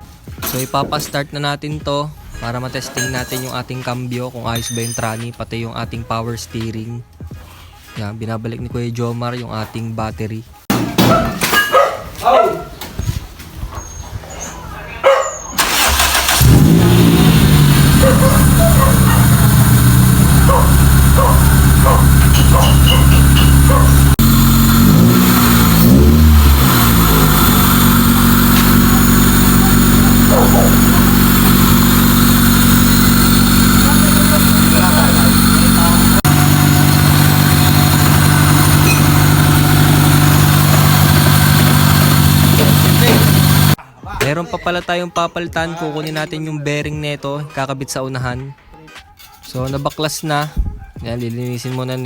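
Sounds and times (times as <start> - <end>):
car engine starting and idling: 15.6 - 43.8.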